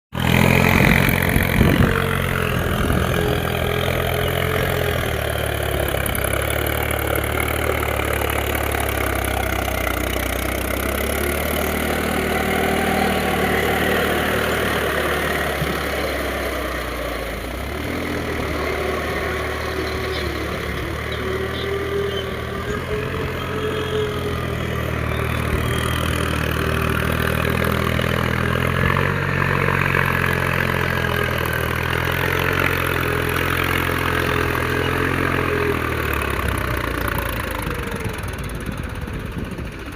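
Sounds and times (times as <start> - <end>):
tractor diesel engine running: 0.1 - 39.9.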